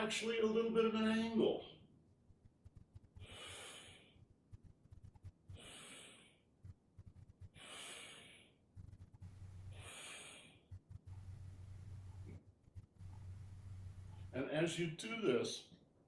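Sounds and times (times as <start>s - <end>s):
faint slow breathing: 3.0s - 14.3s.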